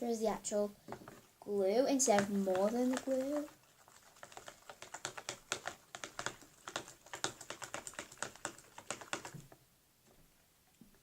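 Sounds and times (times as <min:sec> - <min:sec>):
utensil clicking while stirring slime: 0:00.9 - 0:09.6.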